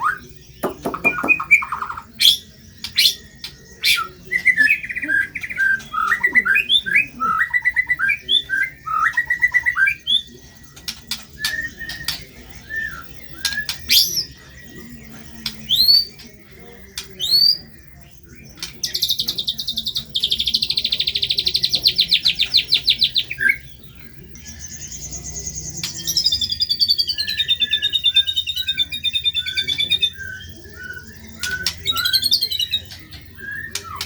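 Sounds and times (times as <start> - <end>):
rapid rattling bird trill: 0.0 - 34.0
songbird whistling: 0.0 - 34.0
bird clicks: 0.6 - 2.0.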